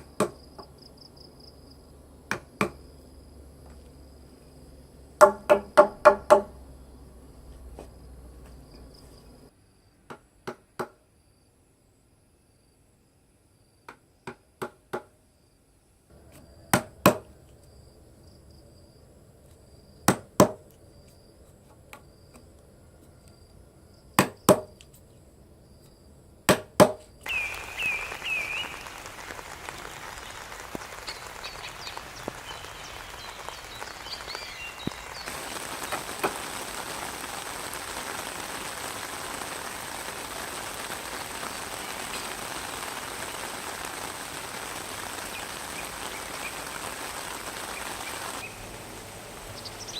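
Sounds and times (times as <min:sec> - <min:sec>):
sharp knocks on wood: 0:05.2 - 0:06.5, 0:10.1 - 0:11.0, 0:13.9 - 0:15.1, 0:16.7 - 0:17.3, 0:20.1 - 0:20.6, 0:24.2 - 0:24.7, 0:26.5 - 0:27.0
steady rain: 0:27.2 - 0:49.9.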